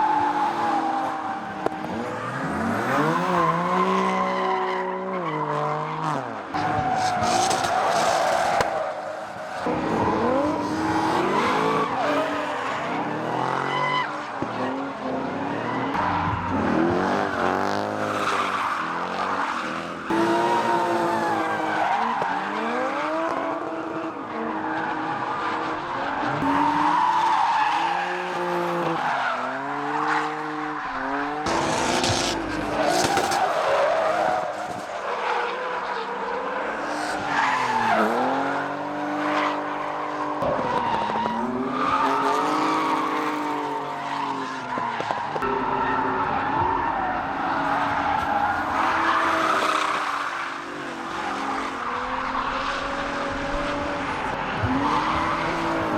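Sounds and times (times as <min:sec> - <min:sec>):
car engines revving: 0:00.0 - 0:55.9
tyres skidding and squealing: 0:00.0 - 0:55.9.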